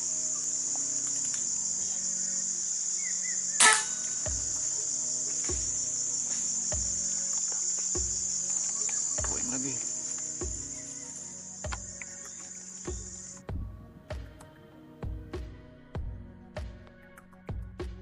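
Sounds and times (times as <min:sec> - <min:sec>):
crickets and cicadas buzzing: 0:00.0 - 0:13.6
rifle shot: 0:03.6 - 0:04.1
dull low thumps: 0:12.9 - 0:14.4.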